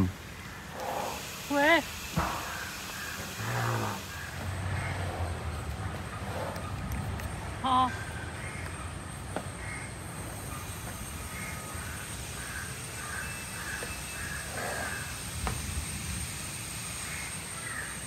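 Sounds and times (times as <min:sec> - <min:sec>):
birds calling: 0:00.0 - 0:15.7, 0:16.4 - 0:18.0.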